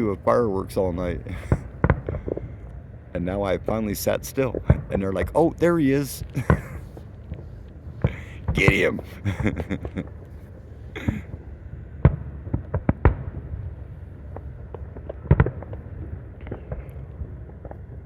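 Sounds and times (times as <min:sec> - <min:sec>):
low rumble: 0:00.0 - 0:18.0
fireworks bangs and pops: 0:01.0 - 0:02.7, 0:04.2 - 0:11.4, 0:12.0 - 0:18.0.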